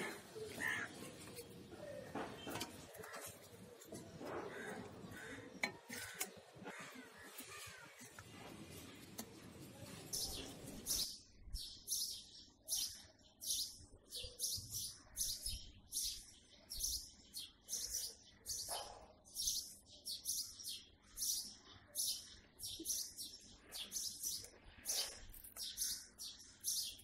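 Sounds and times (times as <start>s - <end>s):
small bird chirping: 10.2s - 27.0s.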